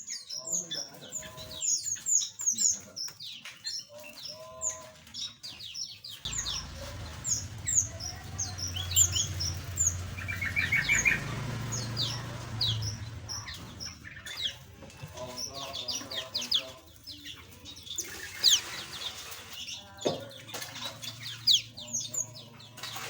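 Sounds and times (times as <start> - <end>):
small birds chirping: 0.0 - 23.0
low rumble: 6.3 - 14.0.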